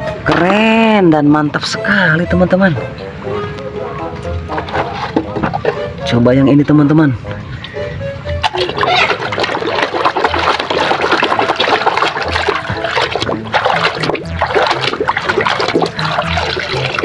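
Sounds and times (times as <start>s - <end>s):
water splashing and trickling: 8.4s - 17.0s.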